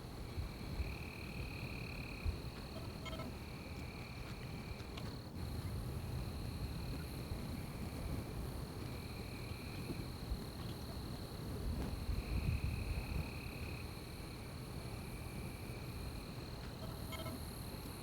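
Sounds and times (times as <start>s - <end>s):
insect buzzing call: 15.1s - 17.7s
insect high trill: 16.8s - 17.6s.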